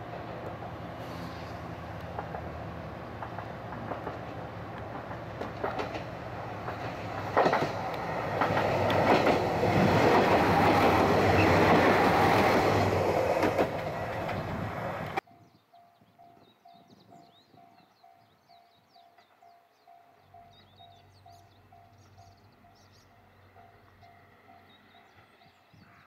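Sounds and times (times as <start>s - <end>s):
train wheels clattering past: 0.4s - 15.2s.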